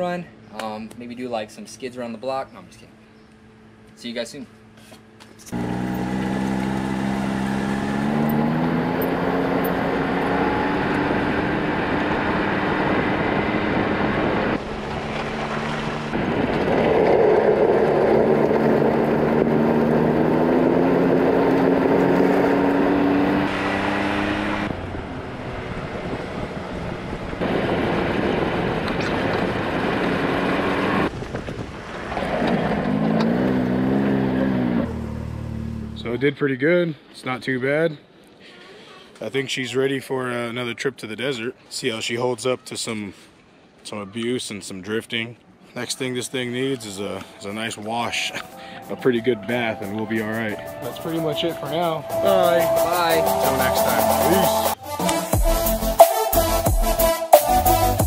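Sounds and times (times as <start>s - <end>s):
off-road vehicle engine running: 5.4s - 36.2s
wind noise: 9.8s - 33.4s.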